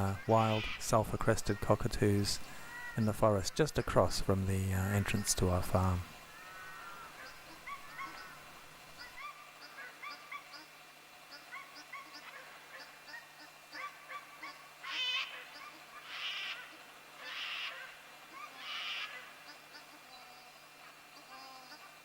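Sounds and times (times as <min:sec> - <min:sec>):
cockatoo harsh screeches: 0:14.8 - 0:19.3.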